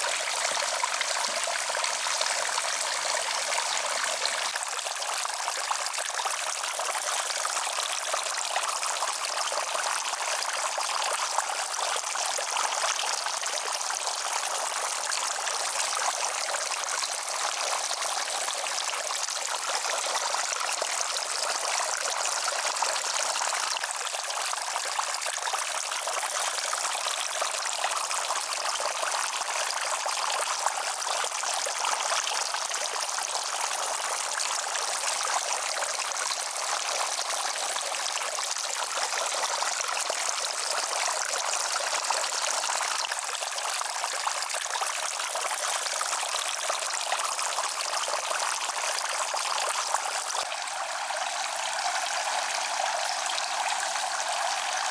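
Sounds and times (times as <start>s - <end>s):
running water rushing: 50.4s - 54.9s.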